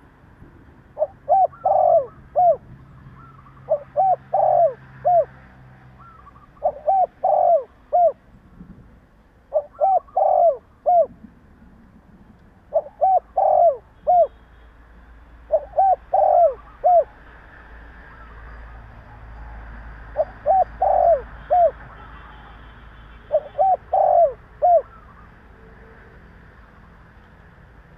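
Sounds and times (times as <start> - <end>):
dove cooing: 1.0 - 5.4, 6.0 - 8.2, 9.5 - 11.2, 12.7 - 14.4, 15.5 - 17.2, 20.1 - 22.5, 23.2 - 25.2.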